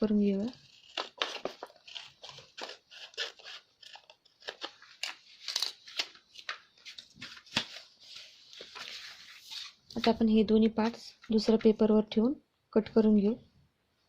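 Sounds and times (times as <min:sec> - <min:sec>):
scissors snipping paper: 0:00.2 - 0:06.5
paper rustling: 0:00.5 - 0:11.8.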